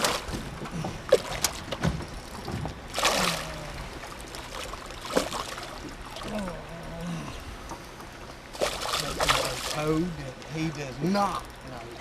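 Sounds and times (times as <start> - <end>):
knocks and clicks on a boat: 0.0 - 3.0
water splashing: 0.0 - 6.8, 8.5 - 10.2.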